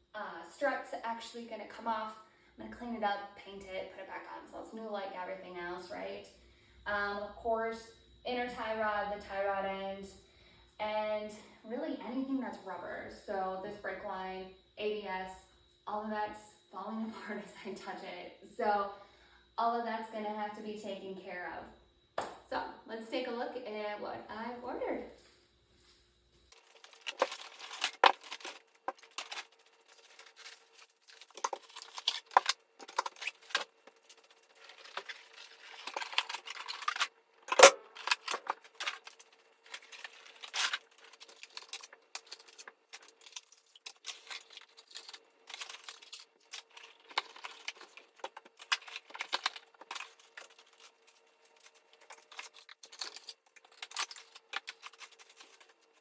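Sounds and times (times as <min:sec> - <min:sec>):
plastic crinkling: 0:26.5 - 0:56.0
cardboard and paper tearing: 0:26.6 - 0:56.0
metal parts clinking and knocking: 0:52.0 - 0:55.7.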